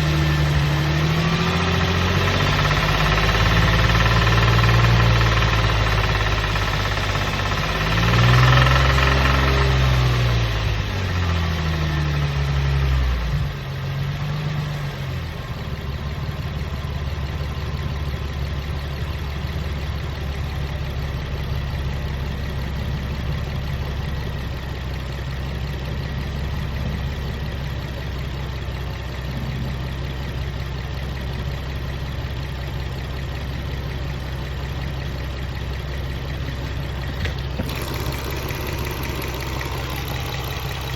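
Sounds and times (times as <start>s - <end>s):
car engine revving and idling: 0.0s - 40.9s
engine rattling knock: 1.4s - 9.8s, 36.0s - 40.9s.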